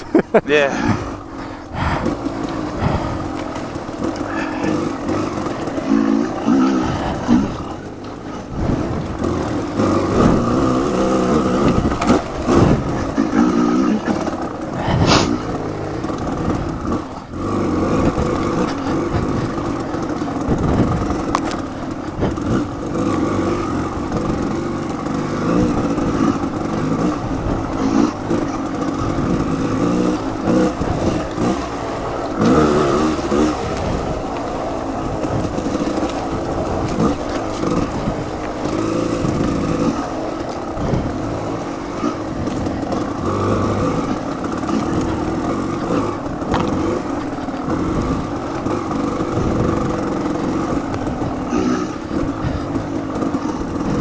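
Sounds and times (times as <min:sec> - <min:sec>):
motorcycle engine revving: 0:00.0 - 0:54.0
knocks and clatter: 0:11.6 - 0:54.0.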